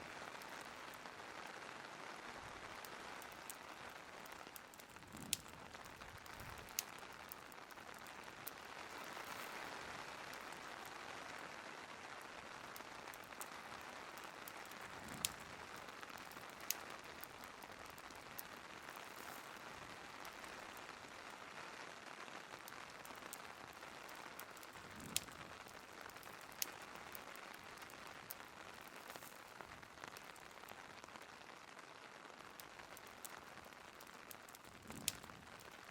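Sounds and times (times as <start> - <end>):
rain hissing: 0.0 - 21.4, 22.0 - 35.9
fireplace crackling and popping: 0.0 - 35.9.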